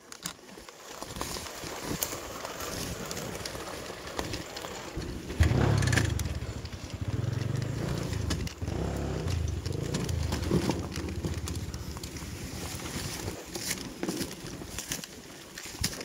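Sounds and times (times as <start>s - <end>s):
leaves and twigs crackling: 0.0s - 16.0s
motorcycle engine at low revs: 5.0s - 13.2s.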